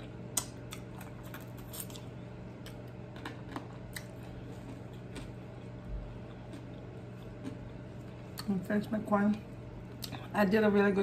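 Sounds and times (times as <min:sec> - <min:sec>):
chewing crispy chicken: 0:00.0 - 0:08.5.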